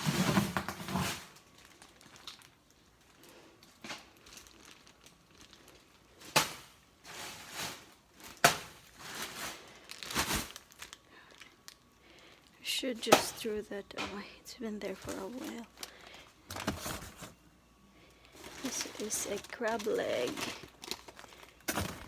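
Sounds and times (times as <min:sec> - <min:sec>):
plastic packaging crinkling: 0:00.0 - 0:13.6, 0:14.8 - 0:17.4, 0:18.1 - 0:22.0
frozen items knocking down: 0:06.2 - 0:10.8, 0:16.5 - 0:17.4, 0:18.4 - 0:22.0.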